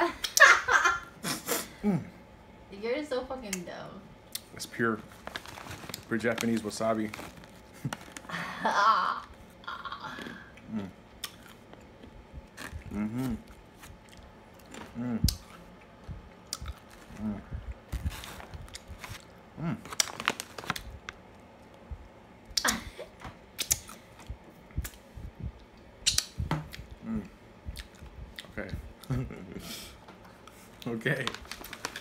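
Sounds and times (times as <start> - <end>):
plastic snack bag crackling: 4.6 - 8.4, 17.9 - 21.2, 30.8 - 32.0
murmured vocal sounds: 9.7 - 11.0, 12.8 - 13.5, 14.8 - 15.4, 27.0 - 27.4
person crunching nuts: 16.4 - 20.9
lip smacks: 23.6 - 25.0, 25.6 - 26.9.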